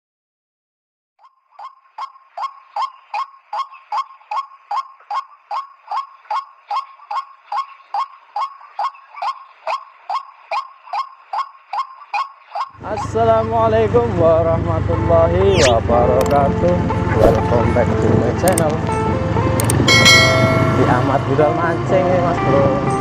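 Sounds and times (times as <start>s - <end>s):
waterhen calling: 1.2s - 12.7s, 15.5s - 15.8s.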